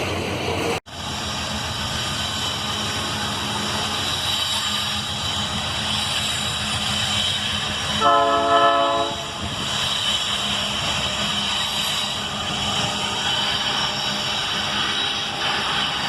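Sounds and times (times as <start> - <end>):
train rumbling on rails: 0.0 - 16.0
train horn blast: 8.0 - 9.5.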